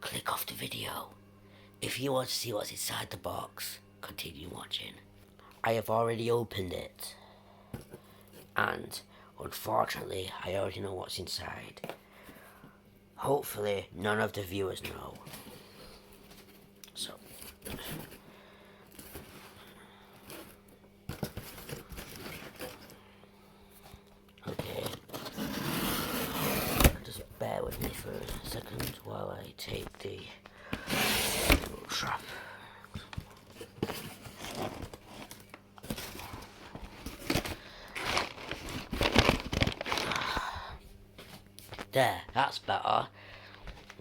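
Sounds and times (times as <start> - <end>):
cardboard packaging rustling: 18.9 - 23.0, 24.4 - 29.2, 30.8 - 32.3, 33.0 - 40.5
packaging crinkling and tearing: 33.8 - 40.6.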